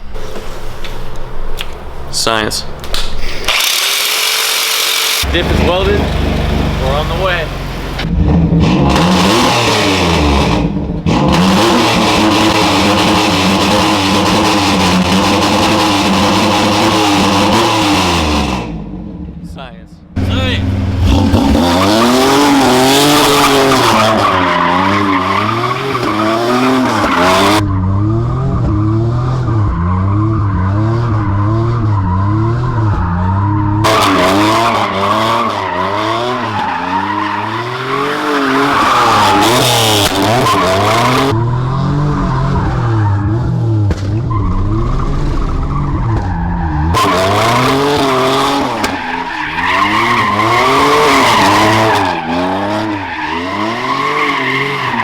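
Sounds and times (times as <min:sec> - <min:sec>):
car engine revving: 0:01.4 - 0:55.0
tyres squealing: 0:44.3 - 0:55.0.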